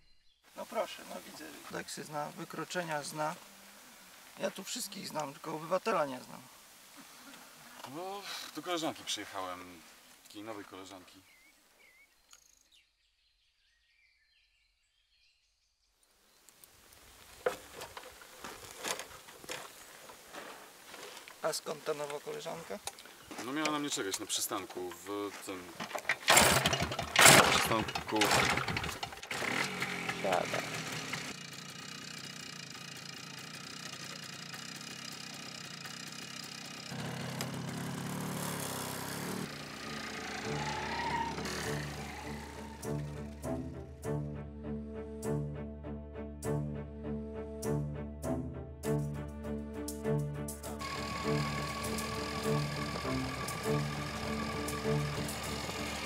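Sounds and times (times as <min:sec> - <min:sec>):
faint bird chirps: 0:00.0 - 0:00.6, 0:09.9 - 0:16.6
motorcycle engine: 0:25.8 - 0:43.7, 0:50.8 - 0:56.0.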